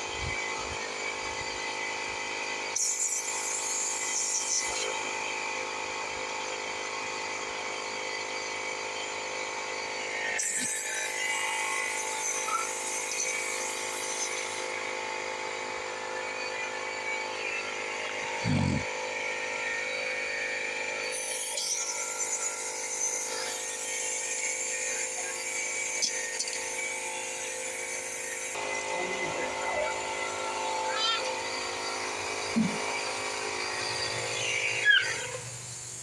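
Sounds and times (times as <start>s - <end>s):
motor humming: 9.8s - 18.9s, 21.7s - 36.0s.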